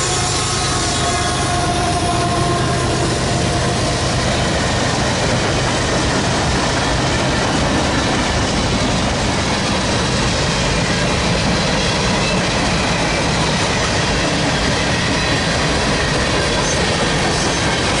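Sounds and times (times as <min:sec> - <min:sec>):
steel wheels running on rails: 0:00.0 - 0:18.0.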